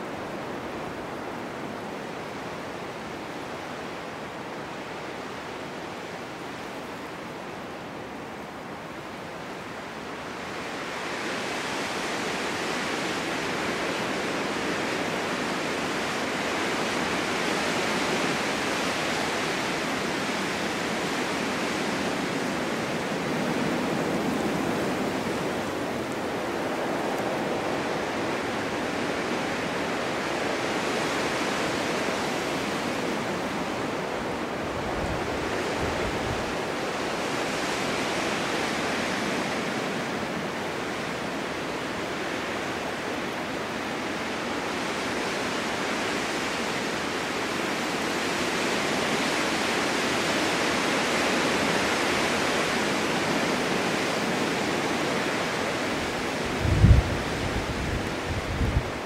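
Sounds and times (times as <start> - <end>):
snowstorm wind rushing: 0.0 - 59.0
wind buffeting microphone: 21.1 - 36.8, 53.9 - 59.0.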